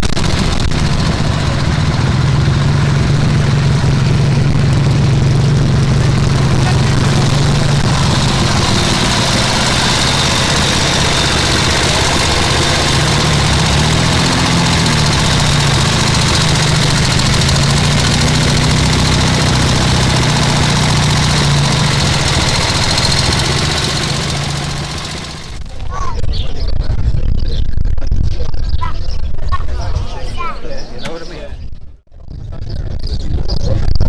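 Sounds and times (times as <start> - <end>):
motorcycle engine idling: 0.0 - 25.8.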